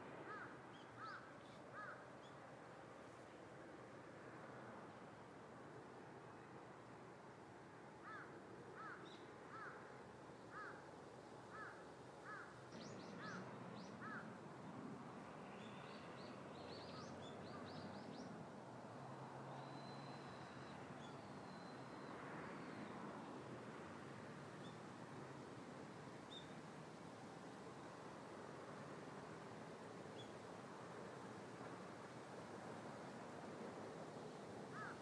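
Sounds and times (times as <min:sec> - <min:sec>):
birds calling: 0:34.8 - 0:35.0.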